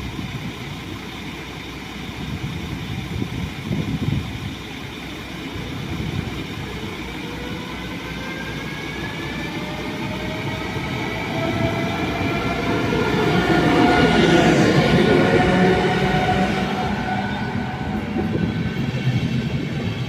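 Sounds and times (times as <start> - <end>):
electric train rumbling: 0.0 - 20.0
train motor whine rising in pitch: 5.3 - 20.0.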